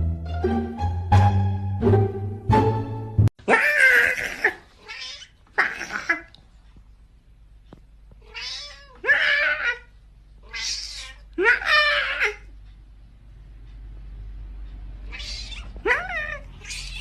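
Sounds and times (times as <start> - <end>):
plucked-string music: 0.0 - 3.3
cat meowing loudly: 3.5 - 6.2, 8.3 - 9.9, 10.5 - 12.4, 15.1 - 17.0.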